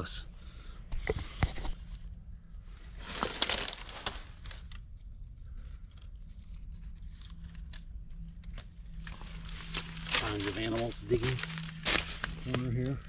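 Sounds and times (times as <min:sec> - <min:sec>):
footsteps crunching through dry leaves: 0:02.9 - 0:04.6, 0:09.1 - 0:13.0.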